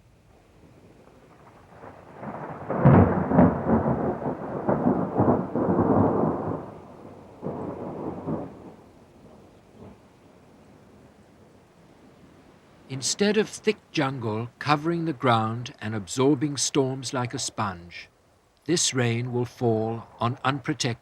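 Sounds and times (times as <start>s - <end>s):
thunder rumbling and cracking: 0.6s - 11.6s.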